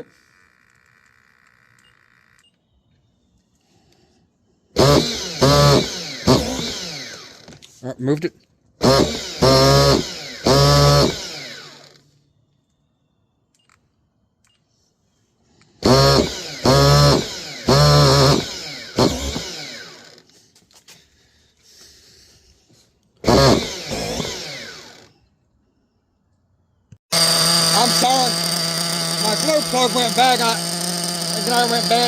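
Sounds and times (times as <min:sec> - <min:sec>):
electric starter spinning engine: 0:00.0 - 0:02.4, 0:04.7 - 0:07.7, 0:08.8 - 0:12.2, 0:15.7 - 0:20.4, 0:23.2 - 0:25.2, 0:27.0 - 0:32.0.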